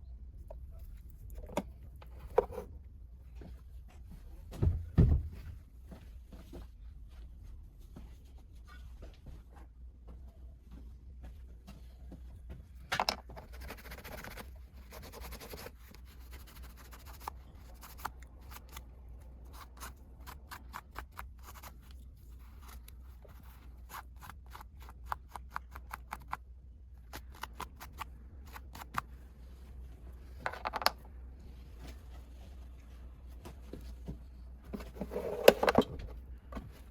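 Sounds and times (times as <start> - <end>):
scratchy handling noise: 13.2 - 26.4, 34.7 - 36.2.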